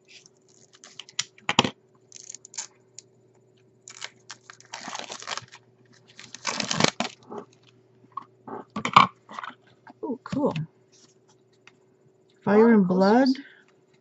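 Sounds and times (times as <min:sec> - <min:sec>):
packaging tearing and crinkling: 0:00.1 - 0:01.3, 0:02.1 - 0:02.7, 0:03.8 - 0:07.7.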